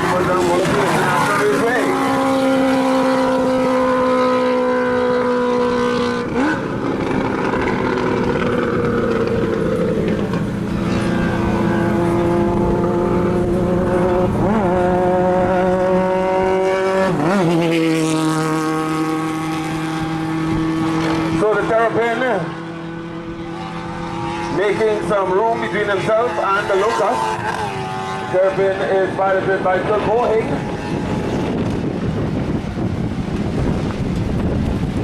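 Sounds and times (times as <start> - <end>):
race car engines at high revs: 0.0 - 35.0.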